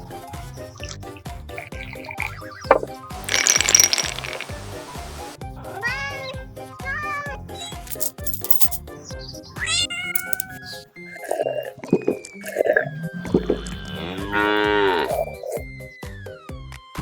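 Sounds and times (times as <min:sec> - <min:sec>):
light background music: 0:00.0 - 0:17.0
animal calls: 0:00.6 - 0:02.9, 0:09.2 - 0:15.7
cat meows: 0:05.7 - 0:07.8, 0:09.6 - 0:10.8.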